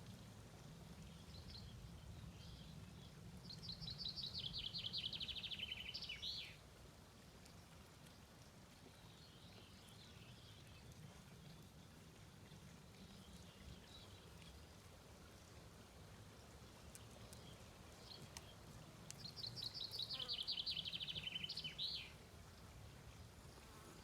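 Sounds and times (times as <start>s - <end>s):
faint bird chirps: 17.4s - 22.1s.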